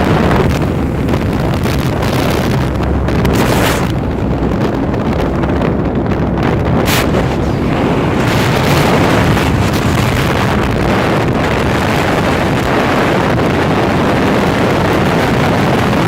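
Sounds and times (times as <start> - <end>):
vehicle engine at speed: 0.0 - 16.0
wind buffeting microphone: 0.0 - 16.0.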